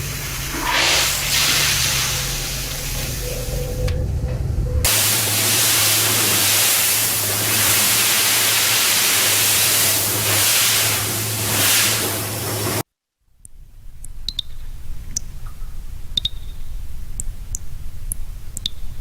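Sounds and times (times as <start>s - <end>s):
pressure washer spraying: 0.0s - 3.8s, 4.9s - 12.8s
low motor hum: 1.5s - 6.4s.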